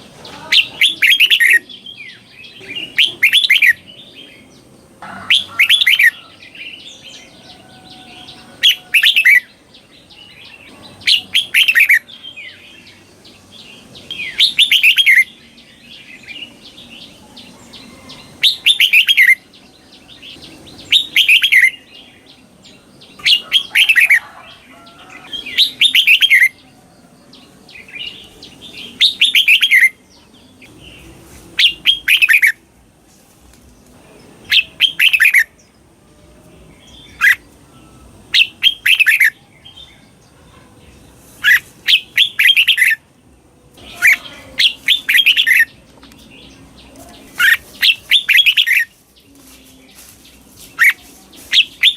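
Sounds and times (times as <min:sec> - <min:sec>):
bird singing whistled phrases: 0:14.1 - 0:15.4.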